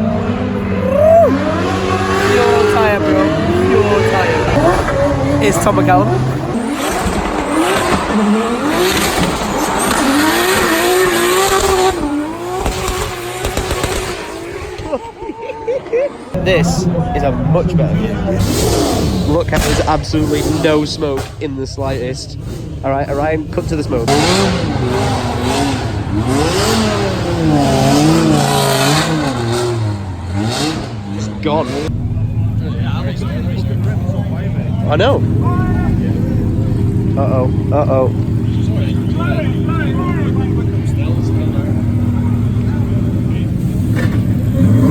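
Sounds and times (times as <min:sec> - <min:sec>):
car engine revving hard: 0:00.0 - 0:14.9, 0:16.3 - 0:44.9
tyres squealing: 0:00.0 - 0:17.0.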